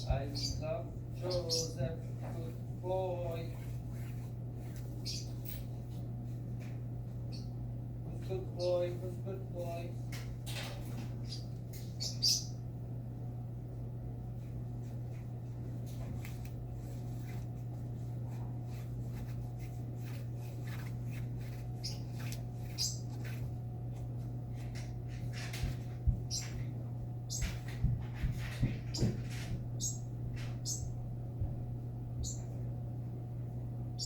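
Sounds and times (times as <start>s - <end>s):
steady low hum: 0.0s - 34.0s
parrot chirping: 5.0s - 5.4s, 11.2s - 12.6s, 21.8s - 23.2s.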